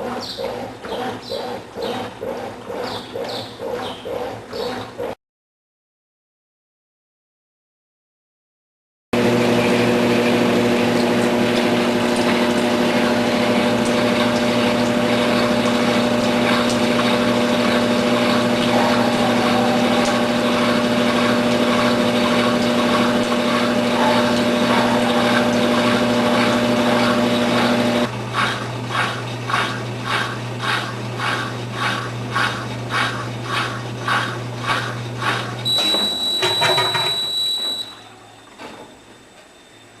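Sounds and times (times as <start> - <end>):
washer drum rhythmic pulsing: 0.0 - 5.2, 9.2 - 39.4
washing machine spinning: 0.0 - 5.2, 9.2 - 40.0
high steady beep: 35.7 - 38.0.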